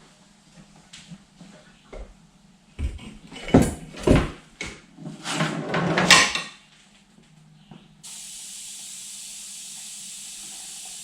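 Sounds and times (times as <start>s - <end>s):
steady hiss: 8.0s - 11.0s.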